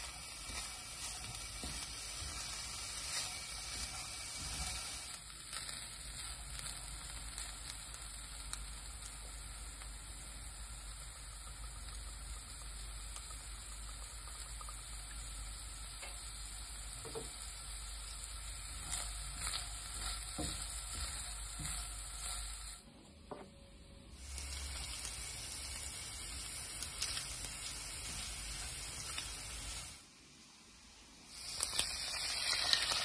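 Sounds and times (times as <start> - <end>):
meat and onion sizzling in a pan: 0.0 - 22.8, 24.2 - 33.0
spatula tapping and scraping a pan: 0.4 - 4.8, 18.8 - 22.0.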